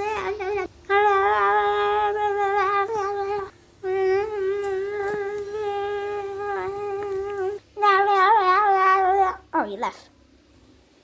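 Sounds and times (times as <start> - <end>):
child humming: 0.0 - 9.6.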